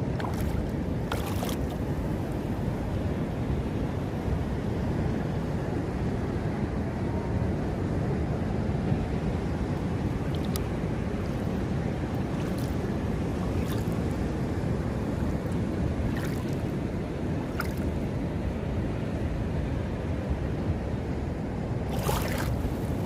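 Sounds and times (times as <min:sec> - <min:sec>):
sea surf washing at shore: 0:00.0 - 0:23.0
wind on microphone: 0:00.0 - 0:23.0
faint ticks of water: 0:10.3 - 0:10.7.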